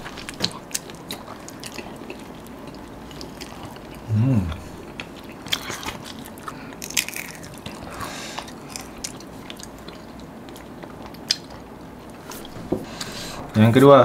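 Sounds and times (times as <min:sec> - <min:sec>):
crunchy chicken being chewed: 0:00.0 - 0:04.1, 0:04.8 - 0:11.7.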